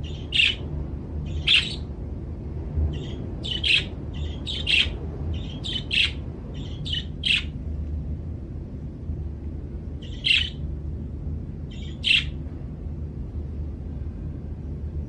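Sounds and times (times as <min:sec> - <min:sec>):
budgerigar chirping: 0:00.0 - 0:00.6, 0:01.3 - 0:01.8, 0:02.9 - 0:07.5, 0:10.0 - 0:10.6, 0:11.7 - 0:12.4
steady low hum: 0:00.0 - 0:15.0.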